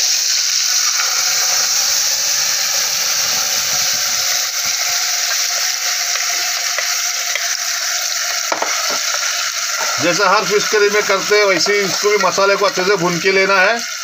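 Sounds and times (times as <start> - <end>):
paste sizzling in hot oil: 0.0 - 14.0.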